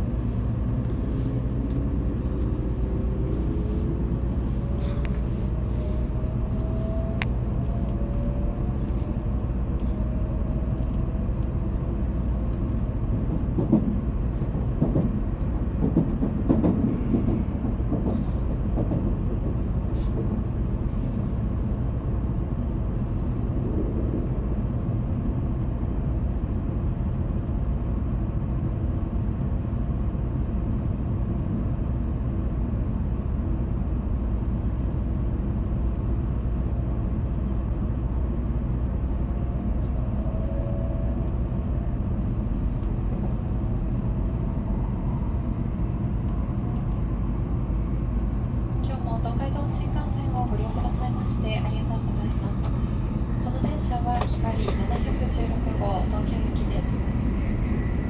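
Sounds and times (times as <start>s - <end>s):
train wheels rumbling: 0.0s - 21.8s, 36.0s - 58.0s.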